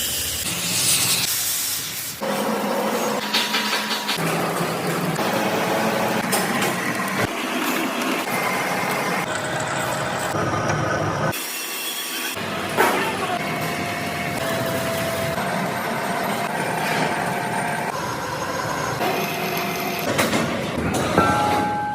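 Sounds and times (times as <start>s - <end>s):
factory machinery din with whining: 0.0s - 21.9s.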